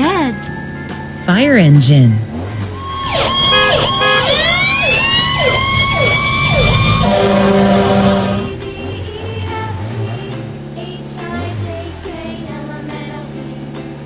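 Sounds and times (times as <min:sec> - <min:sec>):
fire engine siren: 0:02.8 - 0:08.6.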